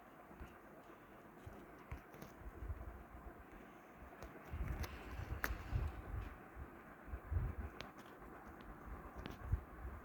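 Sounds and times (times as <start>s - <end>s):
ceiling fan low rumble: 2.4s - 10.0s.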